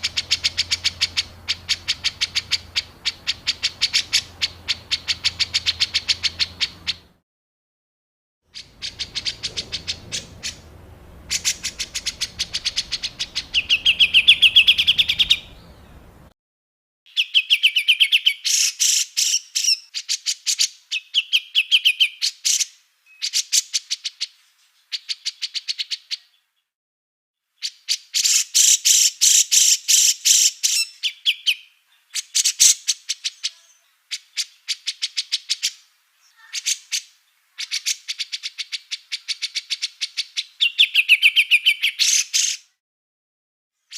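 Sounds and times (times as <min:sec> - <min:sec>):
songbird chattering bursts: 0:00.0 - 0:07.1, 0:08.6 - 0:16.0
low rumble: 0:08.8 - 0:16.3.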